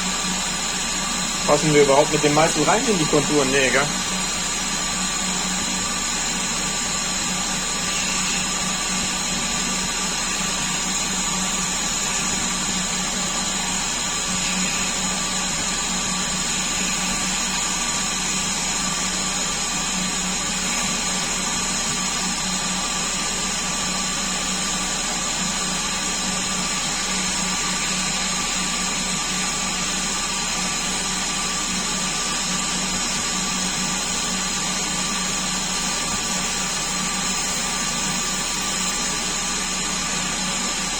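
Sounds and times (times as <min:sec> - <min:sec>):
lathe motor humming: 0:00.0 - 0:40.9.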